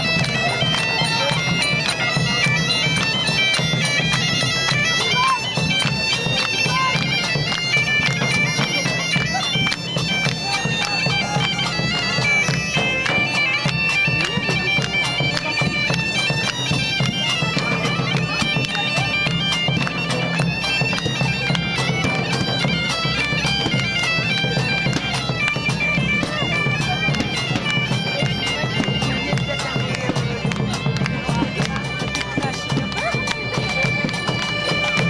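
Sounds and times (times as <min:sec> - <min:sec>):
bagpipes playing fast tune: 0:00.0 - 0:35.0.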